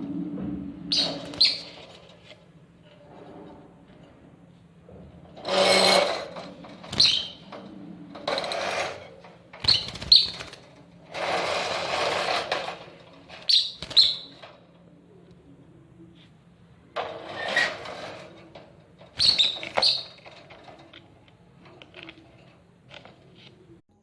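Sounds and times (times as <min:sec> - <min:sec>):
birds chirping: 0:00.6 - 0:02.2, 0:06.0 - 0:10.8, 0:11.4 - 0:18.4, 0:19.1 - 0:20.6
bird harsh screeches: 0:00.9 - 0:02.1, 0:05.4 - 0:07.6, 0:08.3 - 0:10.6, 0:13.4 - 0:14.4, 0:19.1 - 0:20.4.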